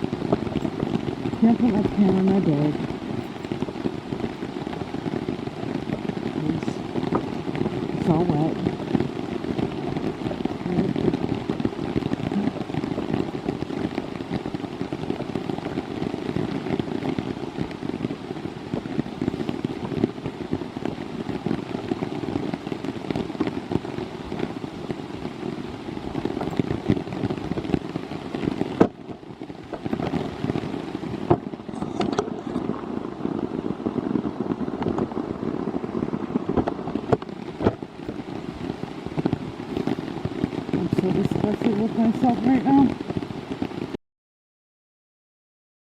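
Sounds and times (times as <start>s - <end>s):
heavy rain pattering: 0.0s - 44.0s.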